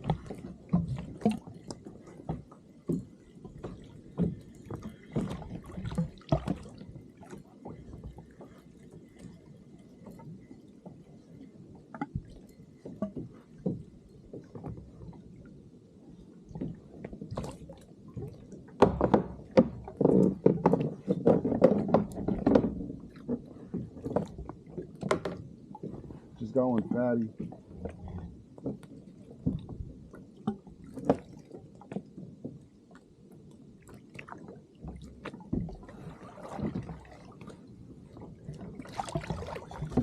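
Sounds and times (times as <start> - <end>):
water sloshing around a kayak: 0.0 - 40.0
knocks against kayak hull: 18.8 - 22.9.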